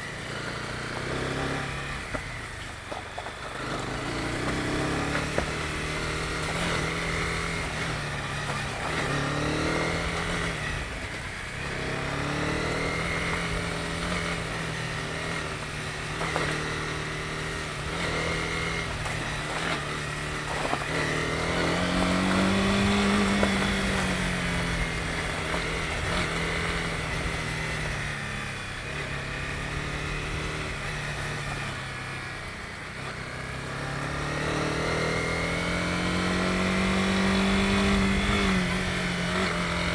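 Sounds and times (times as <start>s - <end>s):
motorcycle engine revving: 0.0s - 39.9s
road and wind noise: 0.0s - 39.9s.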